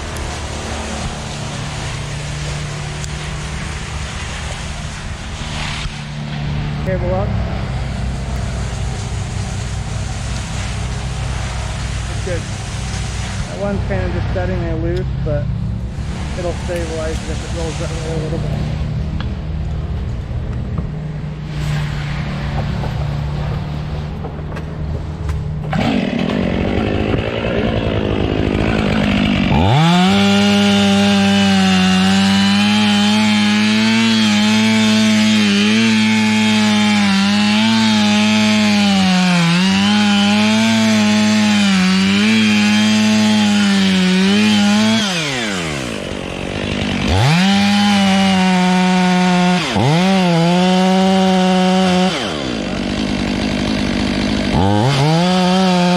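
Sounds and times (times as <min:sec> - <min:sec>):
chainsaw cutting wood: 0:00.0 - 0:15.2, 0:15.9 - 0:19.4, 0:21.4 - 0:55.9
chainsaw revving: 0:16.0 - 0:19.2, 0:25.6 - 0:55.9.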